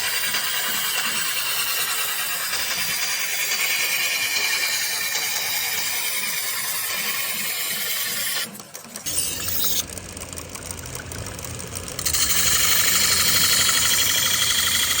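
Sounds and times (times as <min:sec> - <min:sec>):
metal rasping on a sickle blade: 0:00.0 - 0:09.9.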